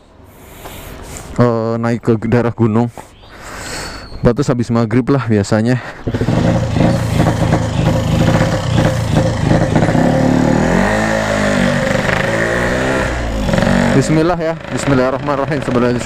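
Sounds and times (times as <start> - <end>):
two-stroke motorcycle engine: 6.1 - 16.0.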